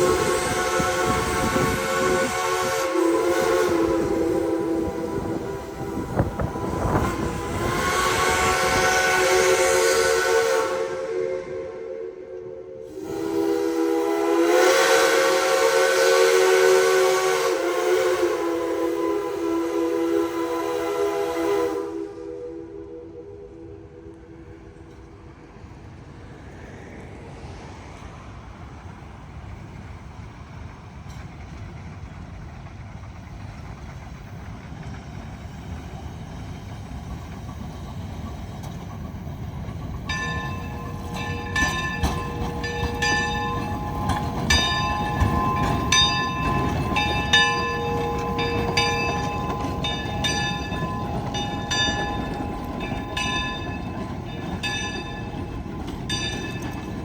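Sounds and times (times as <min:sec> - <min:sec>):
steam locomotive rumble: 0:00.0 - 0:57.0
bell ringing: 0:40.1 - 0:55.4.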